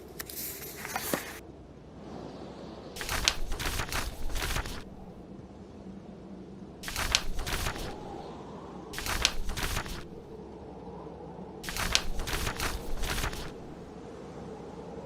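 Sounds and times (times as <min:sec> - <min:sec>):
blizzard wind: 0:00.0 - 0:15.0
book pages turning: 0:00.2 - 0:01.4, 0:03.0 - 0:05.2, 0:06.8 - 0:08.2, 0:09.0 - 0:10.4, 0:11.6 - 0:13.9.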